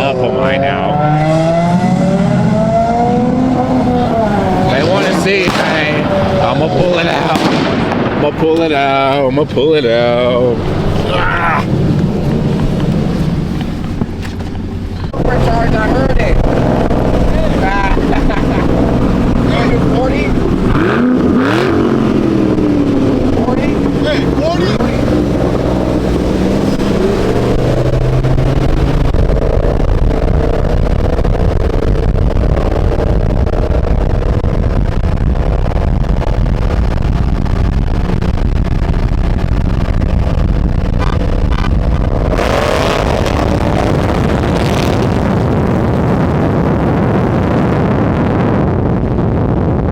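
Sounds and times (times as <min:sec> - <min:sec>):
car engine rumbling: 0:00.0 - 0:49.9.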